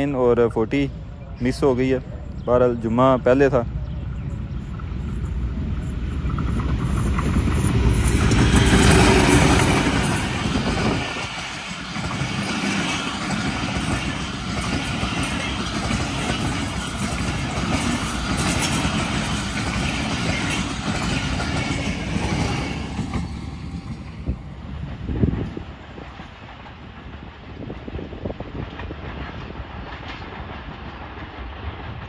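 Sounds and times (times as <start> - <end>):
train wheels rumbling over rails: 0.0 - 32.0.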